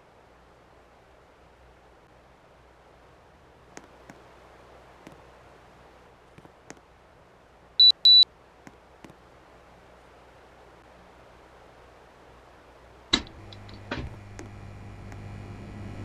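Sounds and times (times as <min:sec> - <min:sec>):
short high electronic beeps: 0:07.8 - 0:08.2
light clicks: 0:13.1 - 0:15.4.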